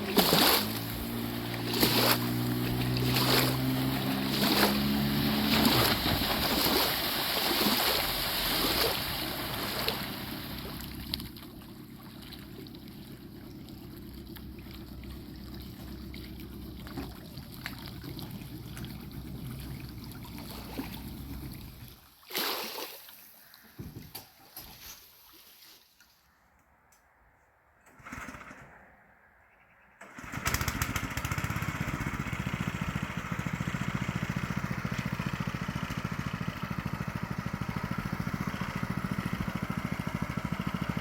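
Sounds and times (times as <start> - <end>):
rush of water and wind: 0.0 - 11.2
engine hum: 0.0 - 22.1, 30.0 - 41.0.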